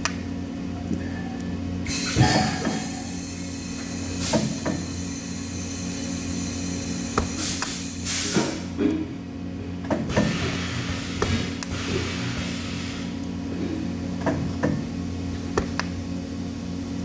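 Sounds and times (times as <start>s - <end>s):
welding machine electrical hum: 0.0s - 17.0s
welding arc hissing: 1.8s - 8.7s.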